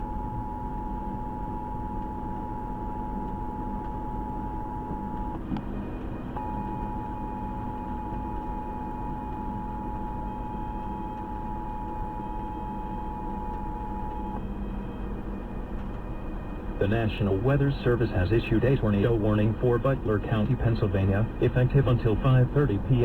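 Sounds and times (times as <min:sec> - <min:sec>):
two-tone alarm on radio: 0:06.4 - 0:14.6.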